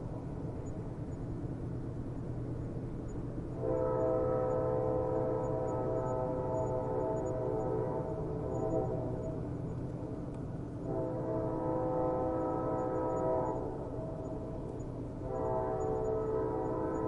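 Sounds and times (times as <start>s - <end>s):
low rumble of train: 0.0s - 17.0s
train horn blasts: 3.6s - 9.4s, 10.8s - 14.4s, 15.2s - 17.0s.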